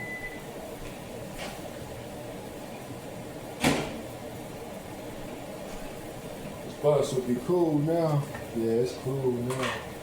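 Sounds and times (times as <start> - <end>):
fan humming: 0.0 - 10.0
door shutting clunk: 3.6 - 4.0.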